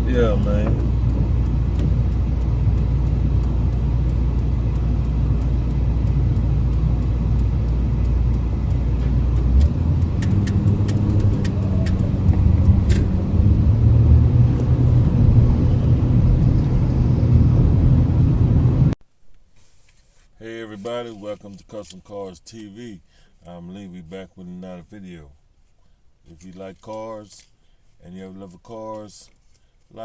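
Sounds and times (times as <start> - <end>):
faint regular ticking: 0.0 - 12.9
car engine and road rumble: 0.0 - 30.0.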